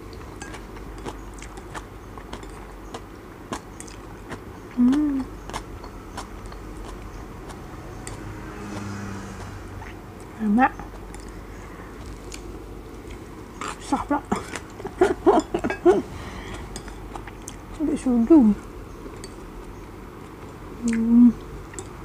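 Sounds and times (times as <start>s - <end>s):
chewing noodles: 0.0s - 15.7s, 16.4s - 17.9s
low steady hum: 0.0s - 22.0s
person humming: 4.8s - 5.3s, 20.8s - 21.4s.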